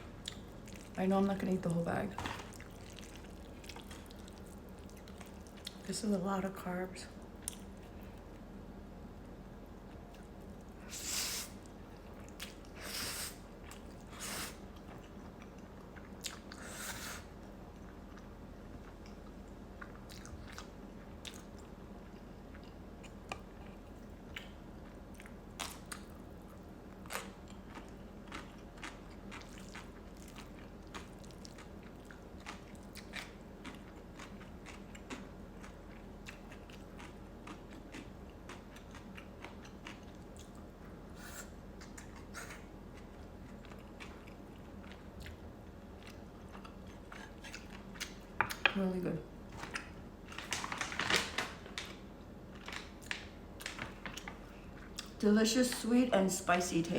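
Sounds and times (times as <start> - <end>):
steady low hum: 0.0 - 56.9
person chewing food: 2.2 - 5.9, 13.5 - 16.8, 17.4 - 48.7.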